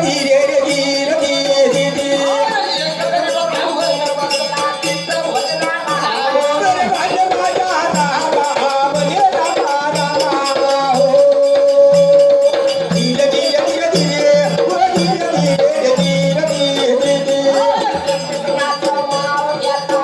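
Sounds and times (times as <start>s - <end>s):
rattling percussion: 0.0s - 20.0s.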